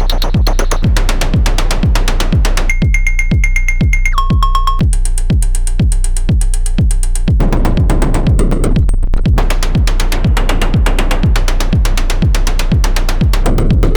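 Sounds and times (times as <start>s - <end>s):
rapid electronic clicking: 0.0s - 1.9s
electronic kick thumping: 0.0s - 13.9s.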